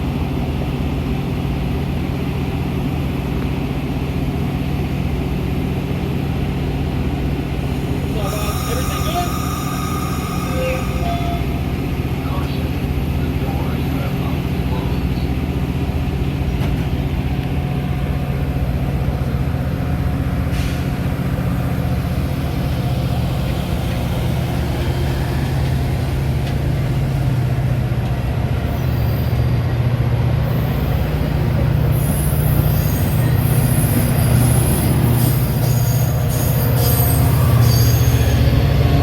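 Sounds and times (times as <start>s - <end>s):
train rumble and hum: 0.0s - 39.0s
wheel squeal: 8.2s - 11.6s, 31.9s - 38.6s.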